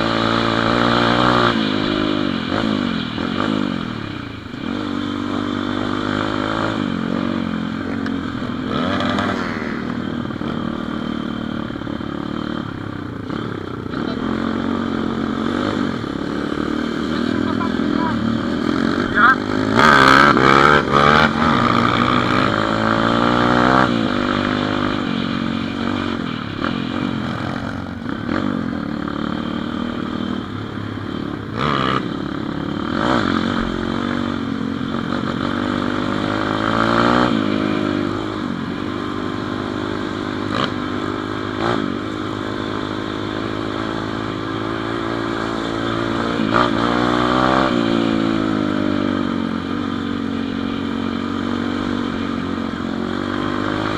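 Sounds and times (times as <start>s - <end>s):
motorbike engine revving: 0.0s - 53.9s.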